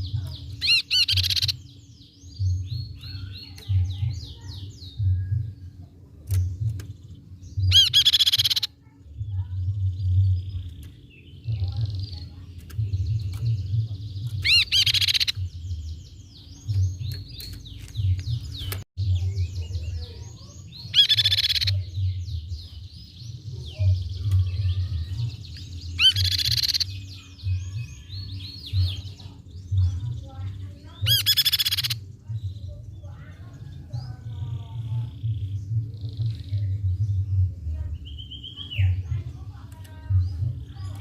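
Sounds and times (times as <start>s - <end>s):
bird chattering trills: 0.0s - 5.0s, 6.6s - 22.6s, 23.7s - 37.0s.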